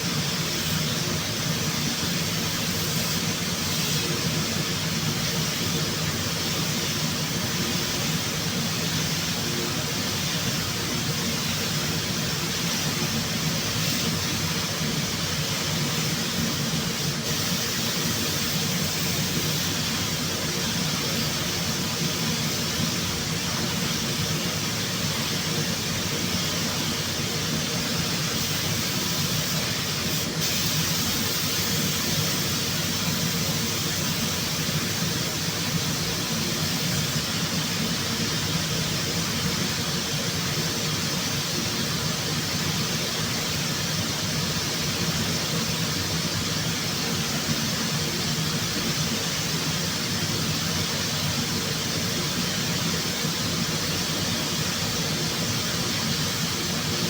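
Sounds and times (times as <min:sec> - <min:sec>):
rushing hiss of air: 0:00.0 - 0:57.0.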